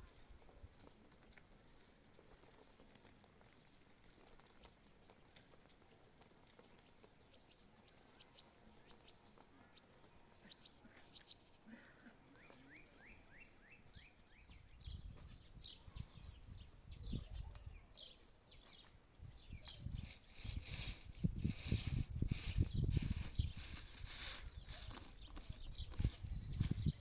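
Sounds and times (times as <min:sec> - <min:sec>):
bird chirping: 0:12.3 - 0:27.0
rustling noise: 0:18.8 - 0:27.0.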